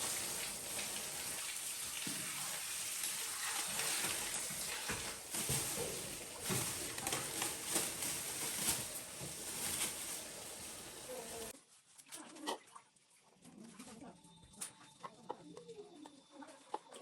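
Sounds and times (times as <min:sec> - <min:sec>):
oil sizzling in a frying pan: 0:00.0 - 0:06.6.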